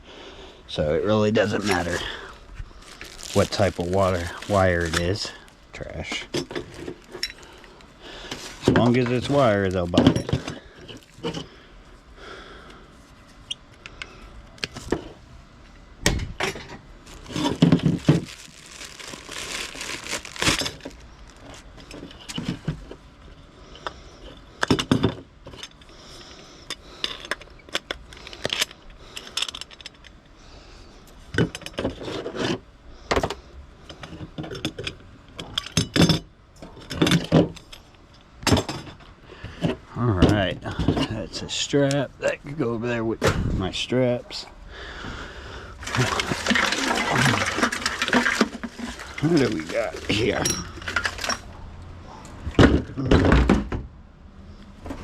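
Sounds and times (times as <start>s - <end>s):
scrap metal and plastic clattering: 1.4s - 11.6s, 16.1s - 23.1s, 45.8s - 51.6s
scrap rattling: 45.8s - 51.6s.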